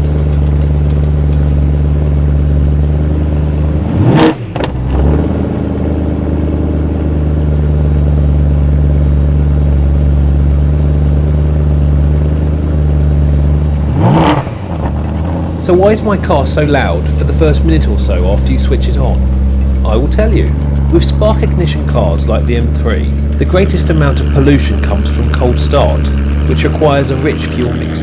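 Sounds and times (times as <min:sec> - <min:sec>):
car engine fast idle: 0:00.0 - 0:28.0.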